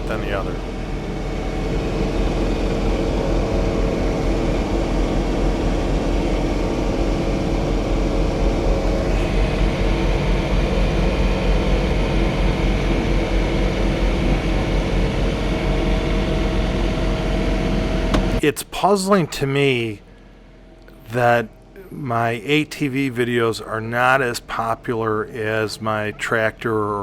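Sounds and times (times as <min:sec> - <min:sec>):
tractor diesel engine running: 0:00.0 - 0:18.4.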